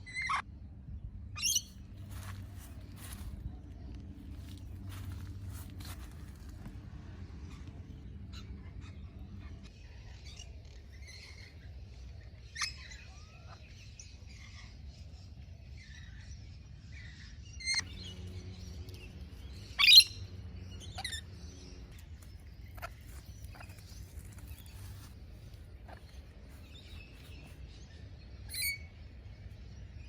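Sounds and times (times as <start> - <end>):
parrots calling: 1.4 - 3.3, 19.7 - 27.7.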